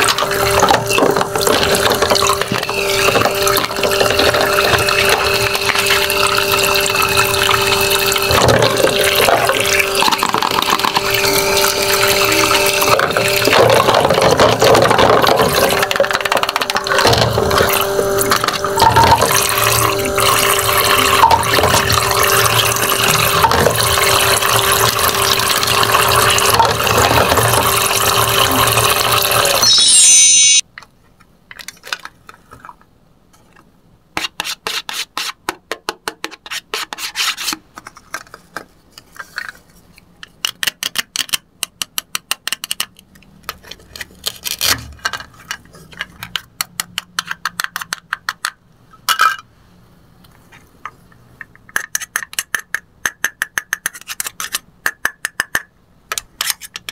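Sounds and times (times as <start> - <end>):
water pouring and splashing: 0.0 - 29.6
pump motor hum: 0.0 - 29.7.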